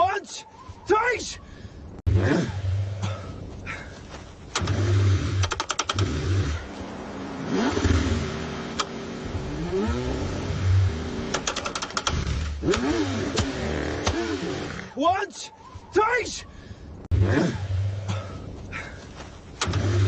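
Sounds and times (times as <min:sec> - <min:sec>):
car engine cranking and revving: 0:04.5 - 0:14.9, 0:17.1 - 0:18.3, 0:19.6 - 0:20.0
sharp clicks: 0:05.4 - 0:06.1, 0:11.3 - 0:14.2.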